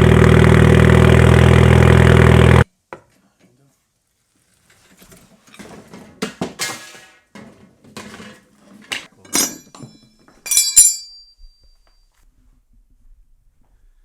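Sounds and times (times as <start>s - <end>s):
hard objects clinking: 6.6s - 11.9s.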